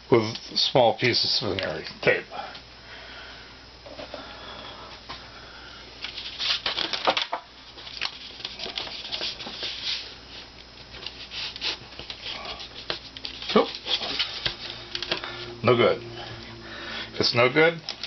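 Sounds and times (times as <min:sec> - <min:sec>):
veneer sheets crackling and rustling: 0:06.0 - 0:15.2.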